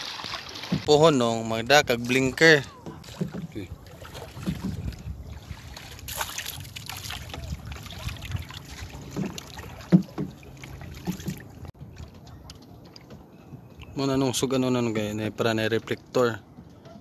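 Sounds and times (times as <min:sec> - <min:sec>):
low wind: 0:00.0 - 0:17.0
water noise: 0:00.0 - 0:17.0
light knocks of boat: 0:02.1 - 0:13.9.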